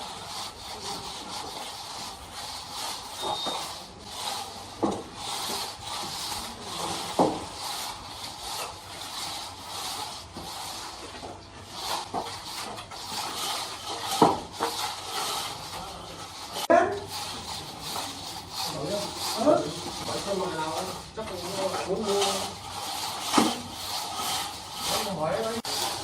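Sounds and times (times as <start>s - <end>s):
tiles scraping and rubbing: 0.0s - 26.0s.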